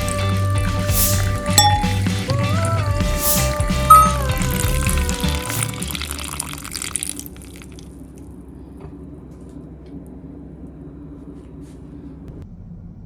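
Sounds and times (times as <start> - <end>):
intro music: 0.0 - 6.7.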